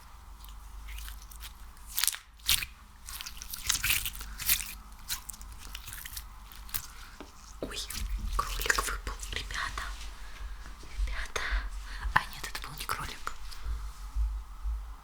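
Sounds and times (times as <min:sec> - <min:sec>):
sticky slime crackling and popping: 0:00.4 - 0:09.4.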